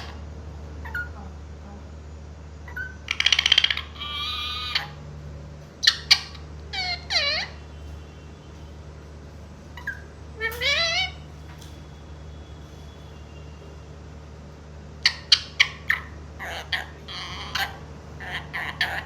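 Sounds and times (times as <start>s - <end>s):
parrot calling and squawking: 0.0s - 1.2s, 2.6s - 5.0s, 5.8s - 7.8s, 9.7s - 11.4s, 15.0s - 19.0s.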